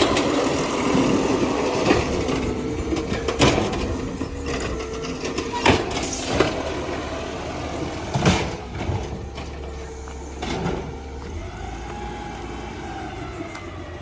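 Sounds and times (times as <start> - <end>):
garbage truck running hum: 0.0 - 14.0
loud clunks and knocks: 7.9 - 9.7.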